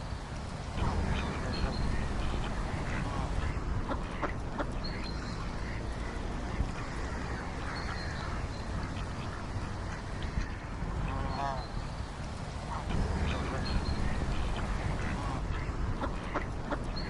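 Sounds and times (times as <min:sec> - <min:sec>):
ducks quacking: 0:00.0 - 0:17.0
low background noise: 0:00.0 - 0:17.0.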